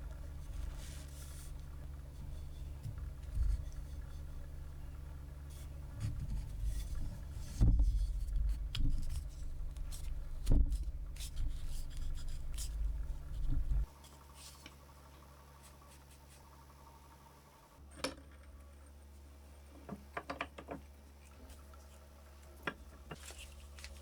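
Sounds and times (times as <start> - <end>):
knocks and scrapes of handling: 0.0 - 14.9, 22.7 - 24.0
low steady hum: 0.0 - 19.9.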